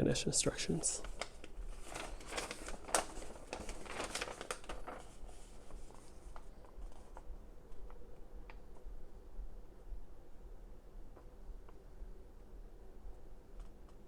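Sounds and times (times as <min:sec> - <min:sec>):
paper leaflet crinkling and rustling: 0:00.4 - 0:08.8.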